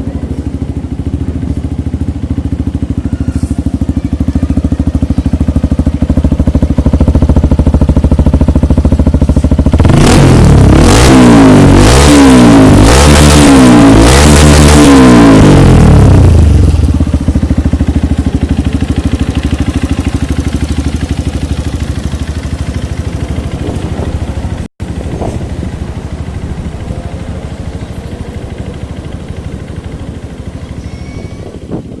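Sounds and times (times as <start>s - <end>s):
motorcycle engine idling: 0.0s - 32.0s
engine revving: 5.1s - 17.9s.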